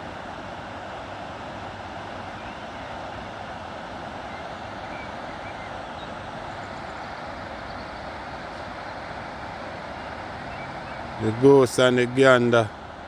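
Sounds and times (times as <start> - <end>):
faint bird chirps: 10.0 - 11.2.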